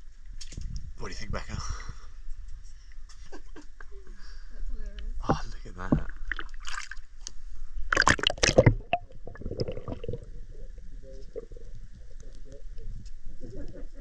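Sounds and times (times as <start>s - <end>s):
water gurgling: 5.8s - 7.2s, 7.9s - 13.6s.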